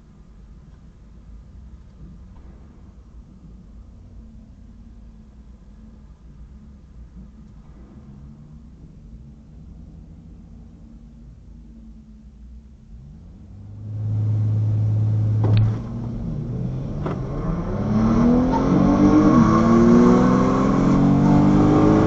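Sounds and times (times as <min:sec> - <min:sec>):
drag car engine revving and accelerating: 0:12.9 - 0:22.0.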